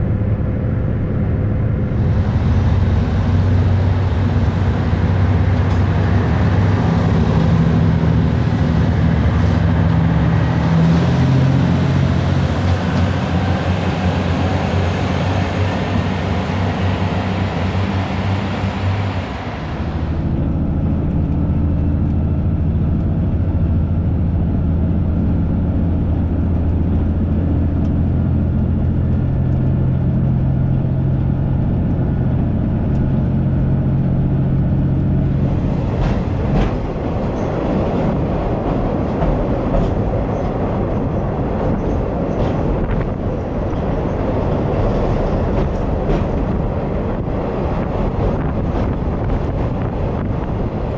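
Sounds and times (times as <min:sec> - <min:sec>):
train rushing noise: 0:00.0 - 0:23.6, 0:24.2 - 0:50.9
train running hum: 0:00.0 - 0:50.9
train clicks: 0:01.9 - 0:23.1, 0:34.9 - 0:50.9.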